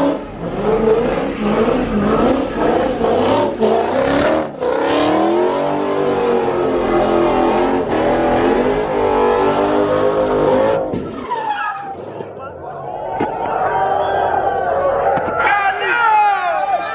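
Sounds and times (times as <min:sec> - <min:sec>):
car engine revving hard: 0:00.0 - 0:10.9.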